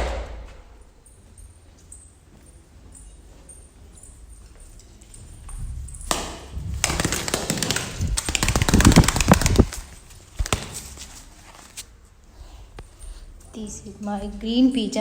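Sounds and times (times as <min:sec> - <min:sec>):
pigeon wings flapping: 0:06.1 - 0:11.8.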